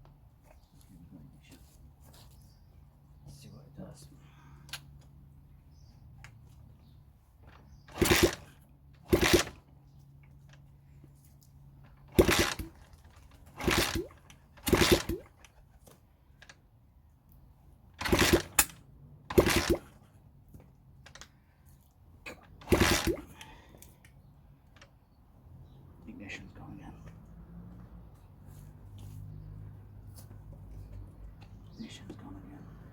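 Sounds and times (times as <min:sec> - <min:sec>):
motorcycle engine being kicked over: 0:07.4 - 0:09.7, 0:11.8 - 0:16.0, 0:17.9 - 0:21.2, 0:22.4 - 0:23.6.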